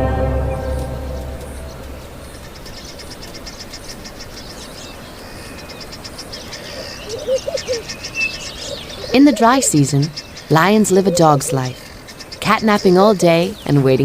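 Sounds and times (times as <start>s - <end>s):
orchestral music: 0.0s - 2.6s
low warbling call: 0.0s - 3.1s, 6.6s - 11.9s
high animal chirps: 6.6s - 11.9s.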